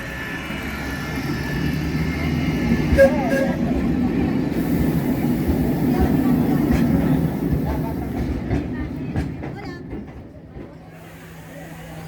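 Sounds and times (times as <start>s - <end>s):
train knocks: 0.0s - 11.5s
electric train rumbling: 0.0s - 12.0s
train squeal: 0.8s - 3.9s.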